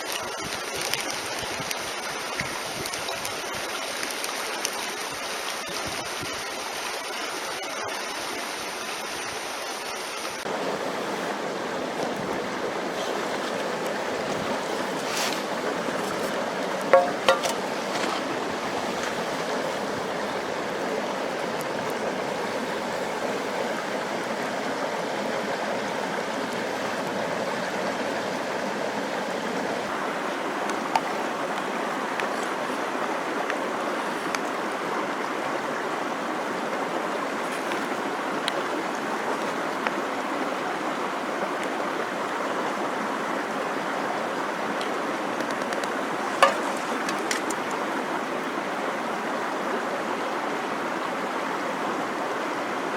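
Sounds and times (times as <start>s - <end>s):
mountain stream rushing: 0.0s - 52.9s.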